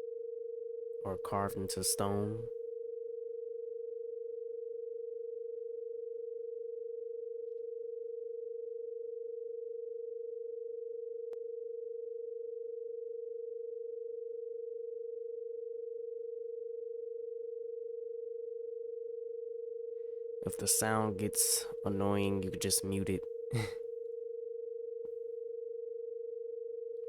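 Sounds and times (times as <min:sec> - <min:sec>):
pulsing pure sine tone: 0:00.0 - 0:01.0, 0:02.7 - 0:20.4, 0:24.2 - 0:27.0.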